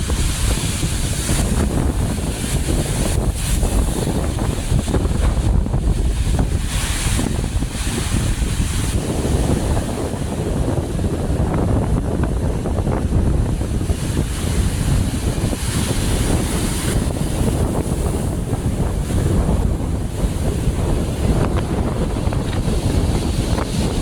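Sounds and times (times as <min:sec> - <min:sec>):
rumble of waves: 0:00.0 - 0:24.0
wind blowing across microphone: 0:00.0 - 0:24.0.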